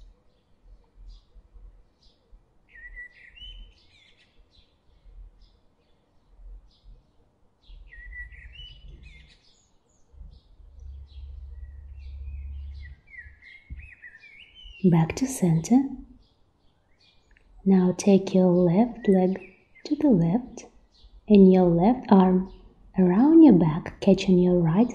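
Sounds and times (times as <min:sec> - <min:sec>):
small birds chirping: 0:00.0 - 0:24.9
low rumble: 0:10.2 - 0:13.1.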